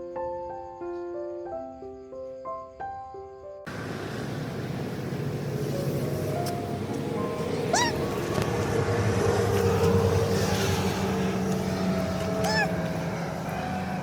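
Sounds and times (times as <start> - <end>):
loud engine-like drone: 3.7 - 14.0
kitten mewing: 7.6 - 8.2, 12.2 - 13.0.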